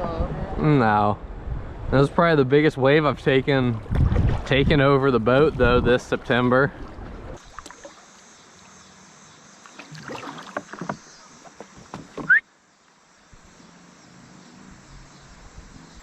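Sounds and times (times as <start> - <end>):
paddle splashing water: 3.7 - 8.7, 9.6 - 12.4
knocks against kayak: 9.9 - 11.0, 11.6 - 12.4.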